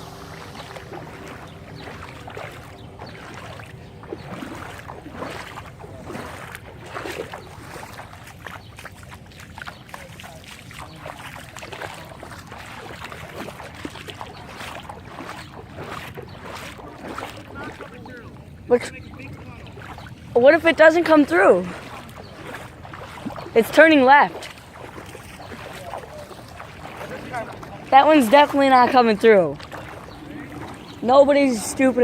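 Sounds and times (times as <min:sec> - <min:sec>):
steady low rumble: 0:00.0 - 0:09.3, 0:21.6 - 0:32.0
floodwater splashing and sloshing: 0:00.0 - 0:32.0.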